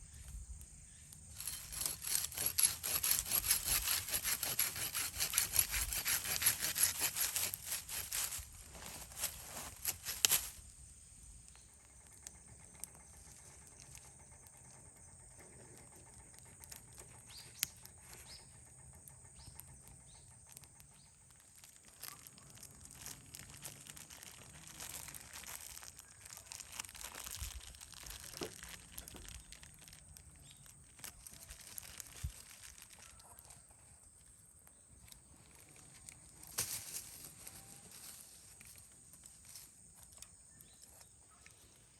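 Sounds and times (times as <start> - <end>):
loud rasping strokes: 1.3 - 10.6.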